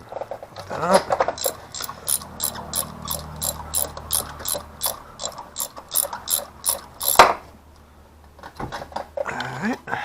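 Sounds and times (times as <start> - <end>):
socket ratchet clicking: 1.4 - 7.3.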